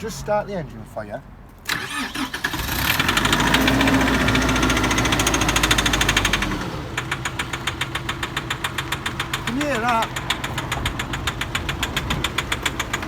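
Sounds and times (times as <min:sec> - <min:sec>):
diesel engine knocking: 0:02.7 - 0:13.0.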